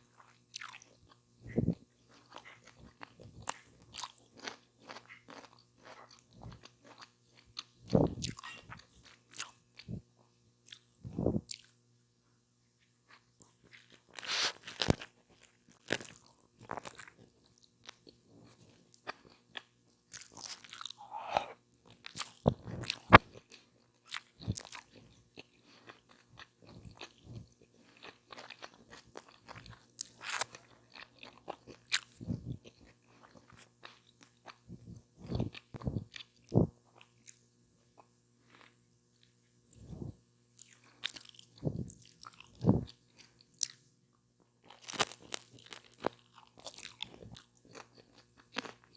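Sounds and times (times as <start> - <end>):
crisp bites and crunchy chewing: 13.1 - 34.6, 44.6 - 48.9.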